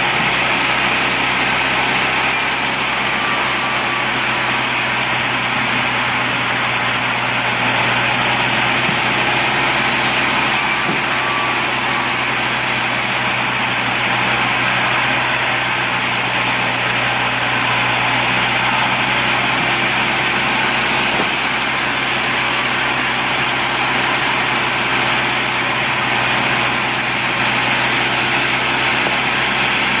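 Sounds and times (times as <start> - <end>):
band saw running: 0.0 - 30.0.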